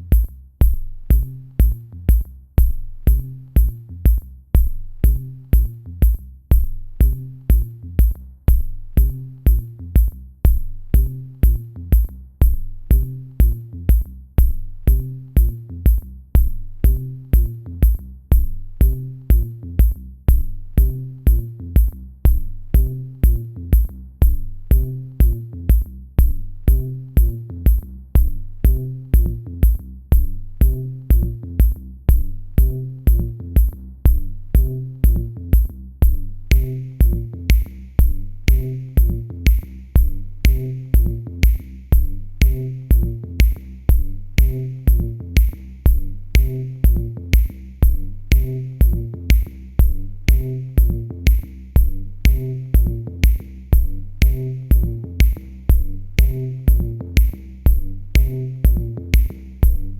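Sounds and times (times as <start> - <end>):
electronic music with drum beat: 0.0 - 59.9
kick drum: 0.0 - 59.9
low bass line: 0.0 - 59.9.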